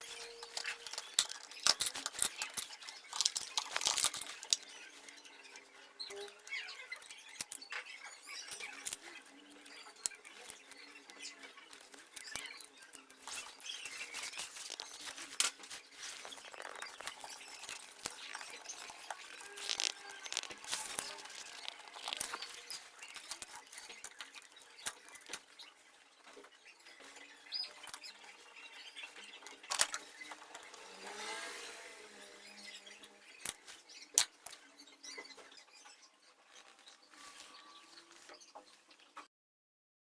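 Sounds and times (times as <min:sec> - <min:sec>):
small plastic parts clicking: 0:00.1 - 0:25.6, 0:29.1 - 0:31.1, 0:32.6 - 0:34.7.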